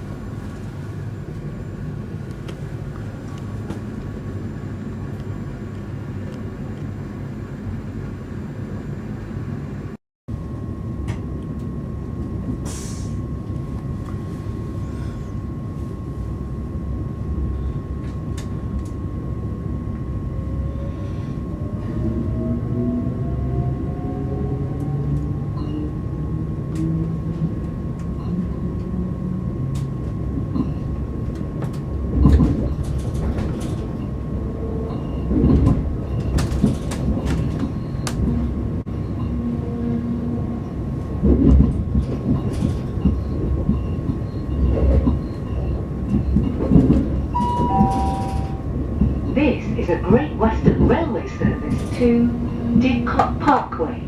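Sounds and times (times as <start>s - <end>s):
train rumble: 0.0s - 54.0s
constant high tone: 47.4s - 48.7s.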